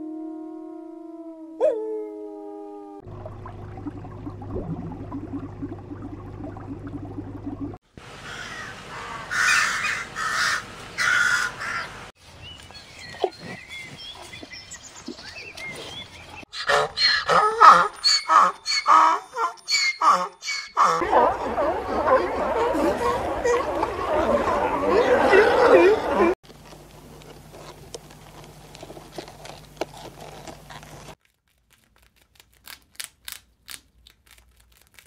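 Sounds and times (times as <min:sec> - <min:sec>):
crow cawing: 0:08.2 - 0:12.0.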